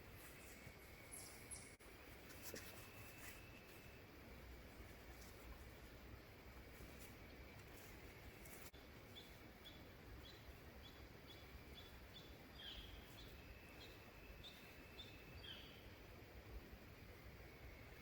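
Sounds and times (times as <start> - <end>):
faint steady high tone: 0.2 - 4.2, 11.4 - 16.0.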